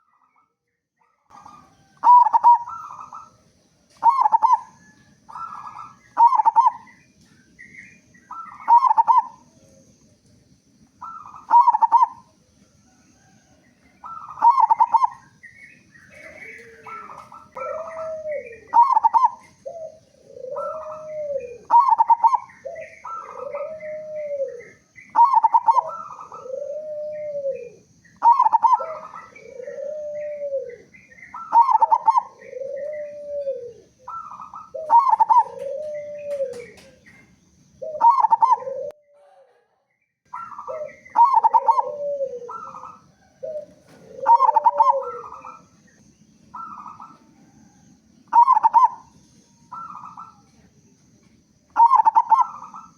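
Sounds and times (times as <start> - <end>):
dove cooing: 1.1 - 50.9, 51.7 - 52.9.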